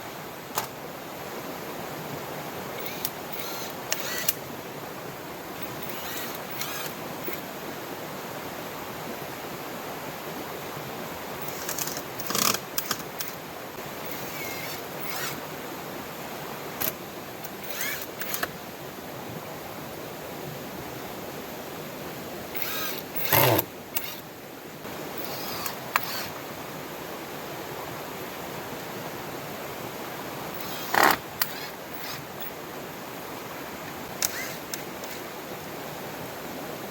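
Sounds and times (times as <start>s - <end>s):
river flowing: 0.0s - 36.9s.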